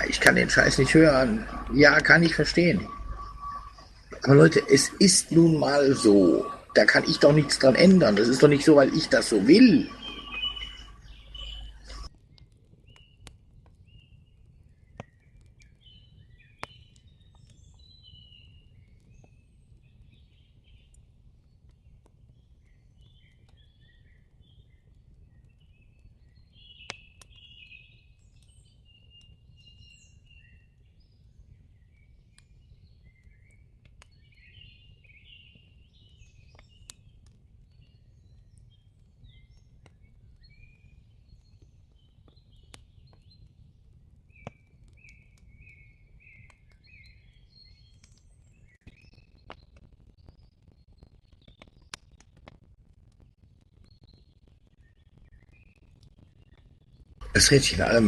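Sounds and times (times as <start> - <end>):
low rumble: 0.0 - 12.1
small birds chirping: 0.0 - 52.5, 53.8 - 58.0.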